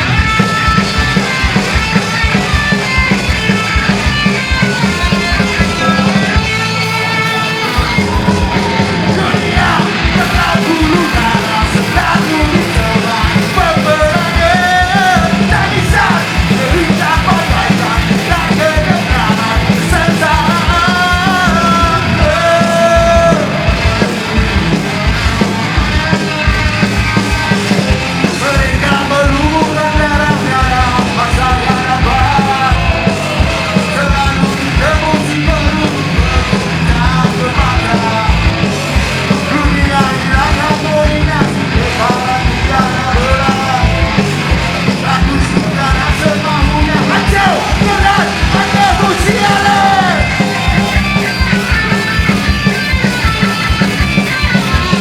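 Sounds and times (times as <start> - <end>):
punk rock band playing: 0.0 - 55.0
rapid drumming: 0.0 - 55.0
person shouting lead vocal: 4.7 - 25.1, 28.2 - 51.7.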